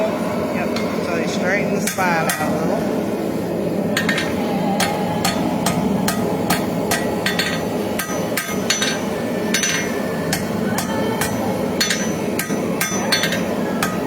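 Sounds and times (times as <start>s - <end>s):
steady rushing noise: 0.0s - 14.0s
hammer striking steel on anvil: 1.8s - 2.7s, 4.0s - 14.0s.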